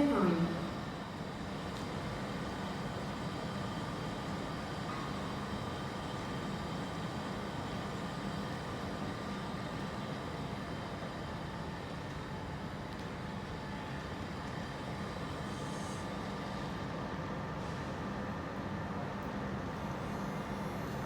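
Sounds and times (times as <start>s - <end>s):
train humming: 0.0s - 1.1s.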